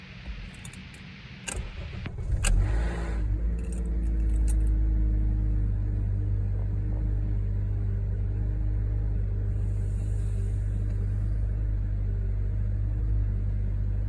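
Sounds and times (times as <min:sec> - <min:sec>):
engine grinding rattle: 0:00.0 - 0:08.4, 0:09.4 - 0:14.0
car engine starting and idling: 0:00.0 - 0:14.0
keys jingling in ignition: 0:00.3 - 0:01.1, 0:03.5 - 0:04.8.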